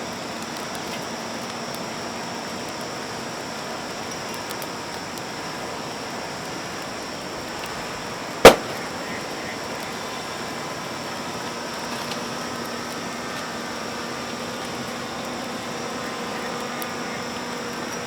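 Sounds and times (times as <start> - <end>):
loud sharp crack: 8.4 - 9.2.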